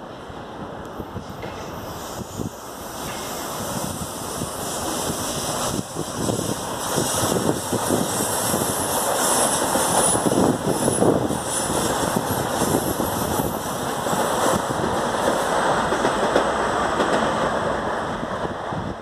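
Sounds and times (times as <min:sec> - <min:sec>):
train wheel and rail noise: 0:00.0 - 0:19.0
high squeal: 0:01.7 - 0:14.6.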